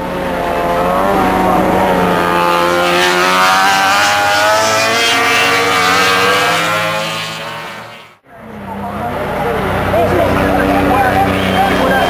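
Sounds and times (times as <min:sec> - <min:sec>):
racing motorcycle engine high revs: 0:00.0 - 0:08.2.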